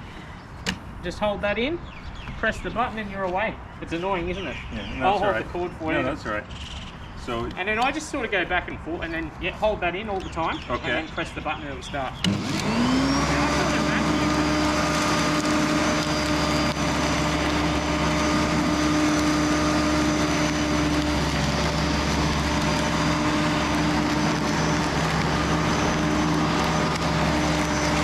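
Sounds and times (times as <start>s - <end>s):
electric lawn mower motor whining: 12.2s - 28.0s.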